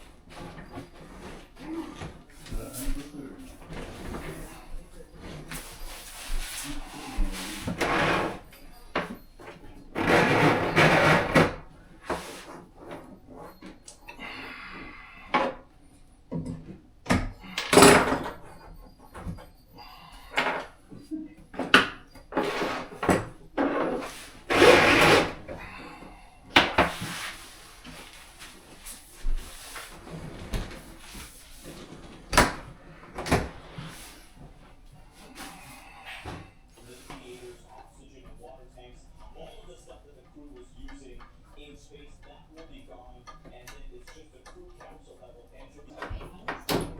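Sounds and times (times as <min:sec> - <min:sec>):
scraping: 0:22.3 - 0:26.2.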